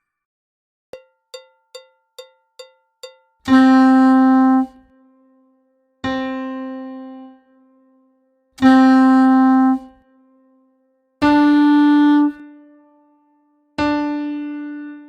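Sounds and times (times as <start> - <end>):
count-in clicks: 1.0 - 3.6.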